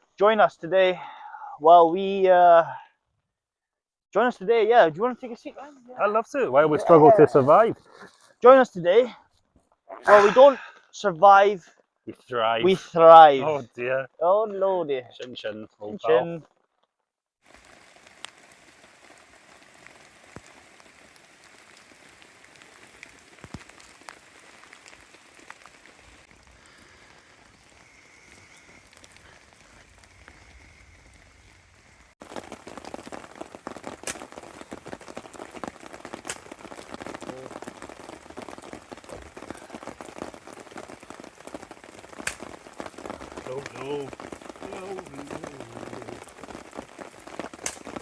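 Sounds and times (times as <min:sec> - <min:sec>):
heavy rain falling: 0:04.4 - 0:09.1, 0:10.0 - 0:10.6, 0:12.6 - 0:14.0, 0:17.4 - 0:48.0.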